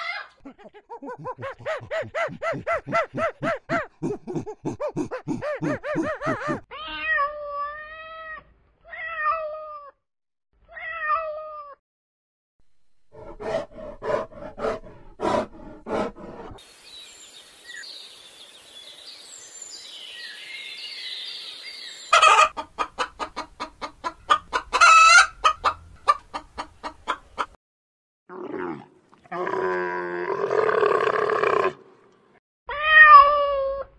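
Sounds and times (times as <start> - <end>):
chickens clucking: 0.6 - 6.6, 22.1 - 27.6
meow-like animal calls: 32.7 - 33.9.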